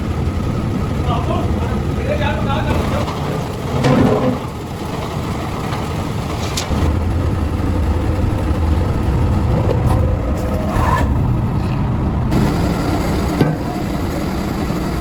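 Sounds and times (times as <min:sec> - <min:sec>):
machinery humming low: 0:00.0 - 0:15.0.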